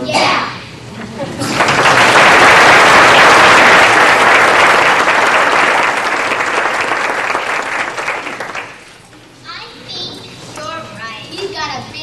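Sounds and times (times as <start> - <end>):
audience applause: 1.3 - 9.0.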